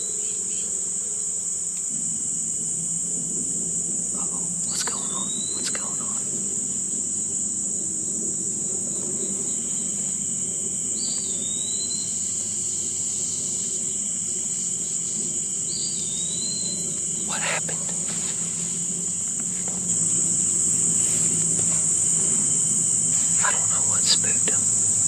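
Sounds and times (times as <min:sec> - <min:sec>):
insect chorus buzzing: 0:00.0 - 0:25.0
whistled calls: 0:04.2 - 0:06.3, 0:10.9 - 0:12.4.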